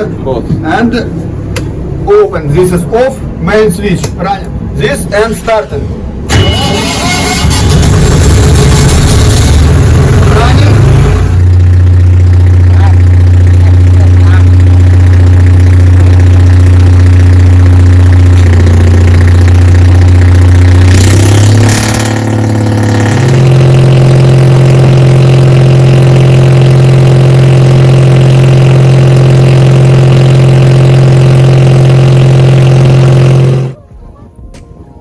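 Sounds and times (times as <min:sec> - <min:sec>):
diesel engine running: 0:00.0 - 0:03.4, 0:04.0 - 0:33.9
burst of noise: 0:06.2 - 0:23.9.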